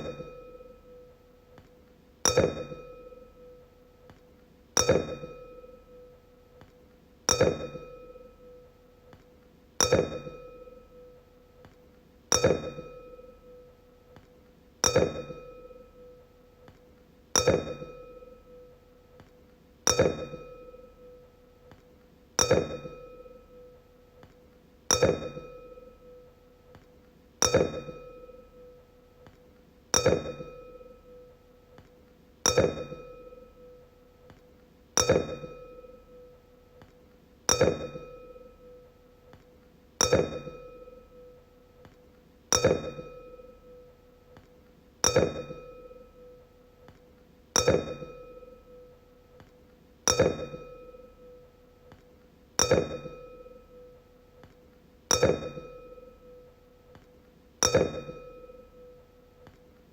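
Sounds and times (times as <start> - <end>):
wine glass clinking and ringing: 7.3 - 8.4, 9.8 - 10.9, 35.0 - 36.2, 40.0 - 41.2, 42.6 - 43.8, 45.0 - 46.2, 47.6 - 48.8, 50.1 - 51.4, 52.6 - 53.8, 55.1 - 56.4, 57.6 - 59.0.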